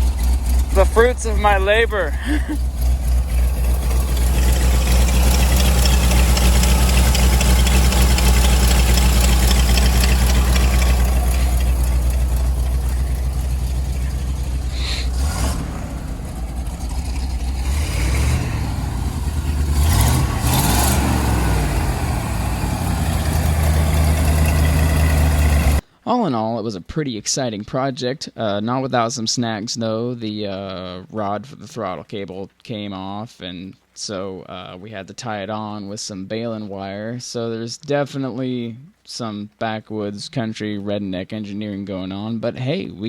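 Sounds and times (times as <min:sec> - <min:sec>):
truck engine idling and revving: 0:00.0 - 0:25.8.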